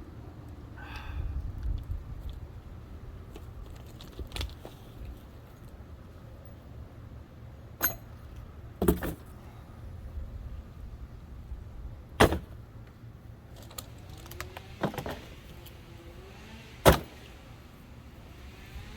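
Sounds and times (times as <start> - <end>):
low steady rumble: 0.0 - 14.2.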